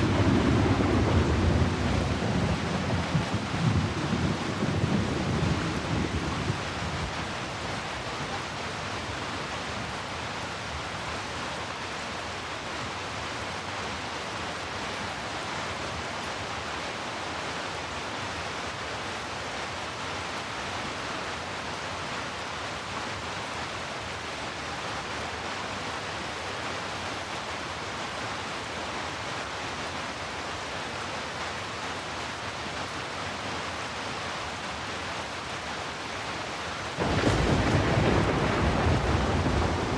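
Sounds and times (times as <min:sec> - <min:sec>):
low thunder rumble: 0:00.0 - 0:07.1, 0:37.0 - 0:39.9
heavy rain: 0:00.0 - 0:39.9.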